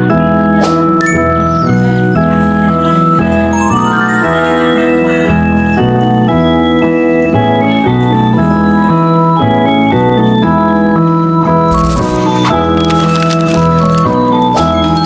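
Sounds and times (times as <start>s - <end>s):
bouncy electronic organ tune: 1.0s - 10.5s.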